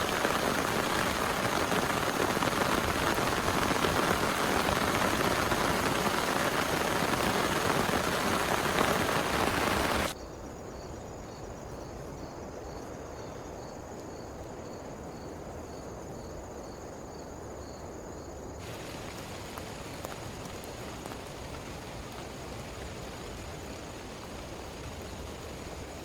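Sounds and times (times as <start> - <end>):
faint raindrop ticks: 0.0 - 10.2, 18.6 - 26.0
rain falling steadily: 0.0 - 10.2, 18.6 - 26.0
faint insect chirp: 0.0 - 26.0.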